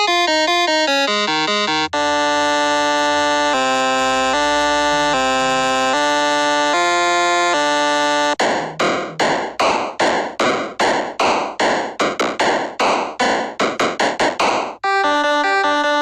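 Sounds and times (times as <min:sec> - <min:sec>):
held synth chord: 0:01.1 - 0:09.1.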